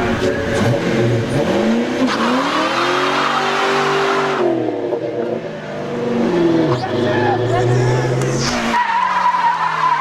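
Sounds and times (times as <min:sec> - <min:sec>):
car engine revving hard: 0:00.0 - 0:04.7.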